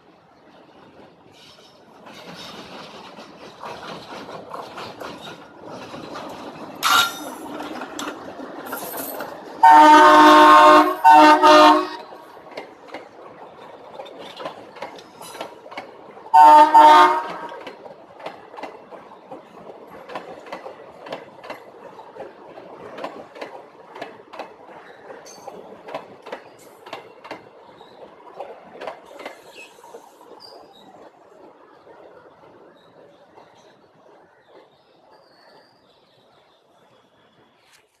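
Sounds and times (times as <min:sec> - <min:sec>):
train wheels clacking on rails: 0:00.0 - 0:36.6
train horn blasts: 0:09.6 - 0:12.1, 0:16.3 - 0:17.6.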